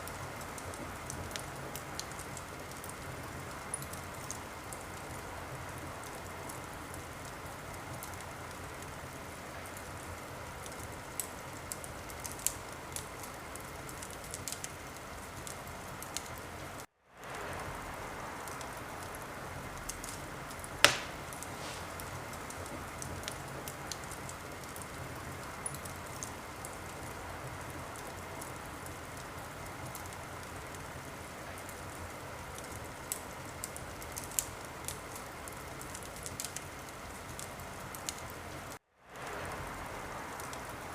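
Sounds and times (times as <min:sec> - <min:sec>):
wood fire hissing and crackling: 0:00.0 - 0:40.9
loud fire pop: 0:20.8 - 0:22.2.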